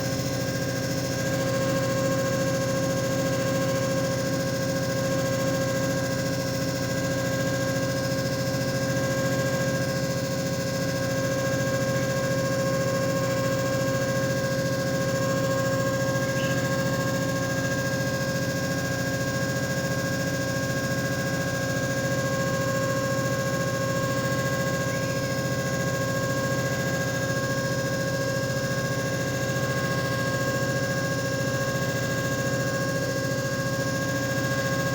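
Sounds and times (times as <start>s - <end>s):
machine motor hum and whine: 0.0s - 34.9s.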